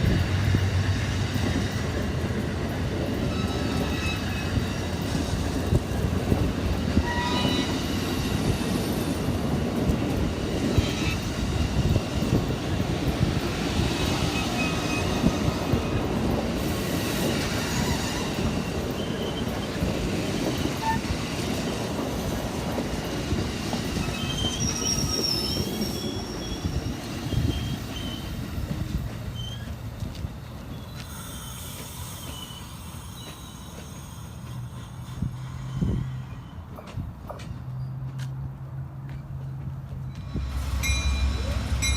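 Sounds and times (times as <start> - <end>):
train wheels rumbling on rail: 0.0 - 41.9
wheel flange squeals: 3.2 - 5.1, 6.9 - 9.0, 17.6 - 21.3, 23.9 - 28.5, 29.3 - 29.9, 30.6 - 37.0.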